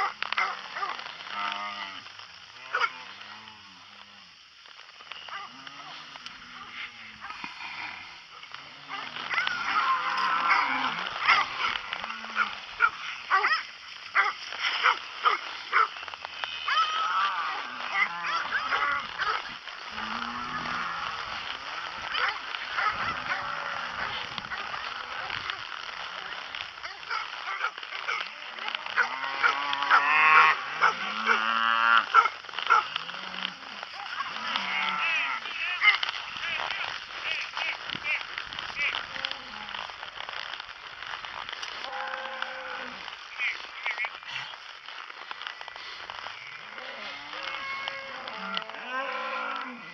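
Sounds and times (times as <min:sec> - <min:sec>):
dogs barking and yipping: 0:00.0 - 0:01.1, 0:08.4 - 0:44.7
cattle bawling: 0:05.2 - 0:49.9.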